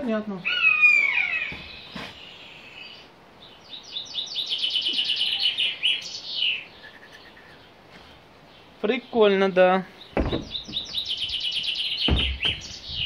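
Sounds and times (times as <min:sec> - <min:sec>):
songbird trilling: 0:00.4 - 0:07.8, 0:10.0 - 0:13.0.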